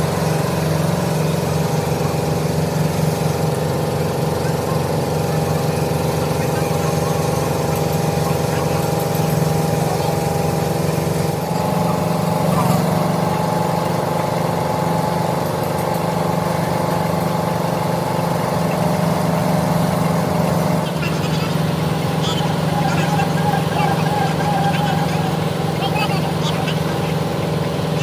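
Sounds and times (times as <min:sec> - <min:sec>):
machinery drone: 0:00.0 - 0:28.0.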